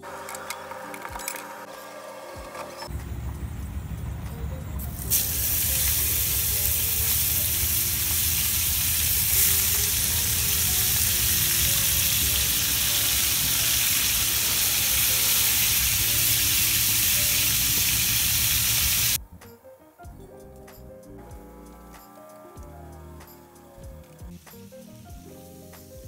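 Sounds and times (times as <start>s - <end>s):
prawns sizzling in hot oil: 4.9s - 19.2s, 24.3s - 26.0s.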